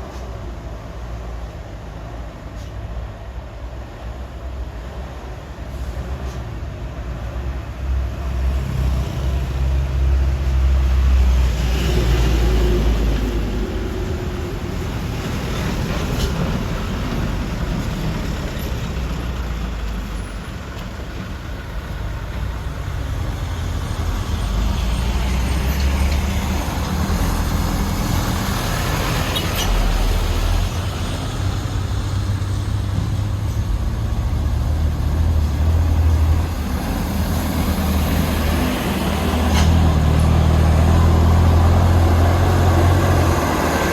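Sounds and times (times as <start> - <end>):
road noise: 0.0 - 43.9.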